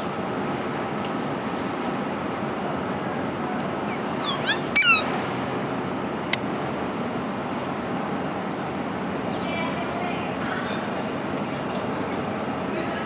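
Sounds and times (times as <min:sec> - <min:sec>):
bird chirping: 0:02.3 - 0:06.1.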